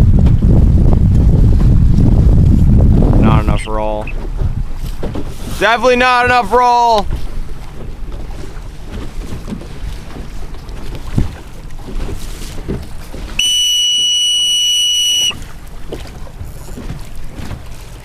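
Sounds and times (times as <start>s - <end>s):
wind buffeting microphone: 0.0s - 13.9s, 15.2s - 18.0s
water noise: 0.0s - 18.0s
high-pitched signal tone: 13.4s - 15.4s.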